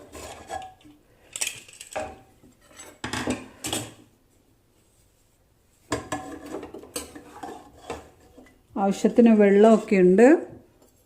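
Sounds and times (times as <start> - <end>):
spoon scraping inside a pot: 0.0 - 1.0, 2.5 - 3.0, 6.0 - 10.2.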